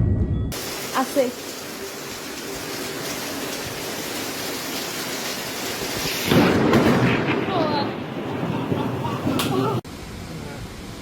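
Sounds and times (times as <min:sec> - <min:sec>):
steady rain: 0:00.5 - 0:11.0
loud thunder rumble: 0:05.3 - 0:09.8.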